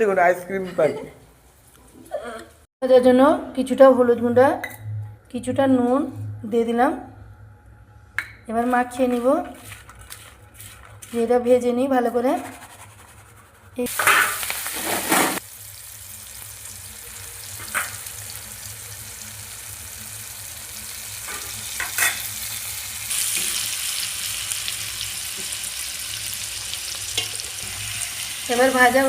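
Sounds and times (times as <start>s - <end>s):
food sizzling in hot oil: 13.8s - 29.0s.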